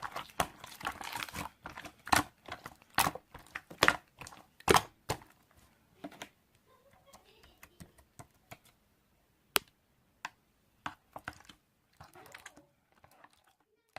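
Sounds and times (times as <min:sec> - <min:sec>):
faint voice: 0:06.6 - 0:08.1, 0:12.0 - 0:12.8.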